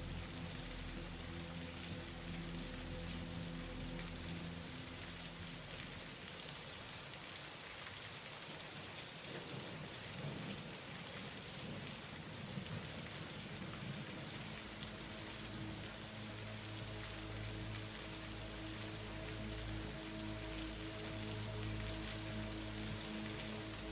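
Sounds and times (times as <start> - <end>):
steady rain falling: 0.0 - 23.9.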